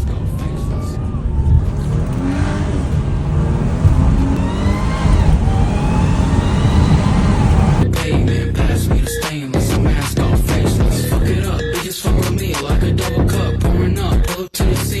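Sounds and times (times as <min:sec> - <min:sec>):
car engine accelerating hard: 0:00.0 - 0:08.4
music: 0:07.8 - 0:15.0.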